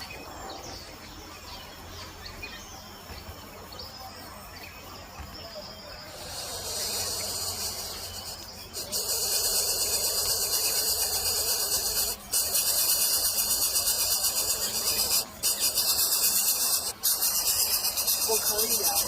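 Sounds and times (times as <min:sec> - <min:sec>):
high-pitched insect-like buzzing: 0:06.1 - 0:19.0.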